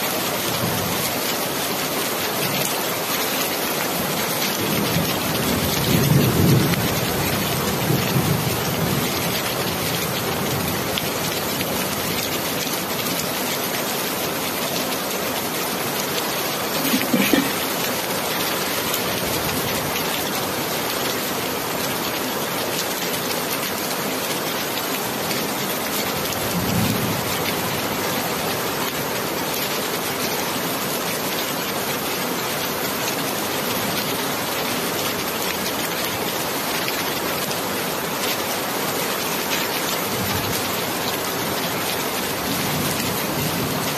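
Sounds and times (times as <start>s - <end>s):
heavy rain: 0.0s - 43.9s.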